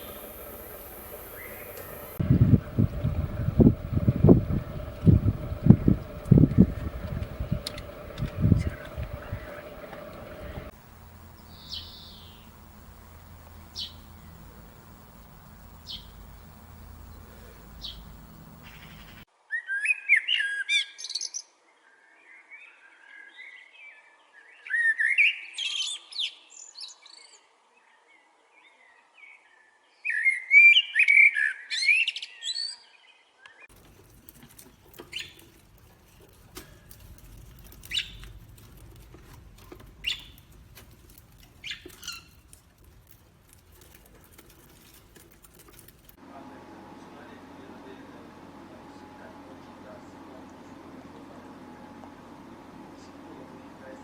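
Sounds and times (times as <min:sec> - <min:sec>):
bird chirping: 0:00.0 - 0:19.2, 0:36.9 - 0:38.8, 0:39.6 - 0:42.9
rapid chirping bird song: 0:00.0 - 0:19.2, 0:37.6 - 0:38.4, 0:39.8 - 0:40.7, 0:41.4 - 0:42.6.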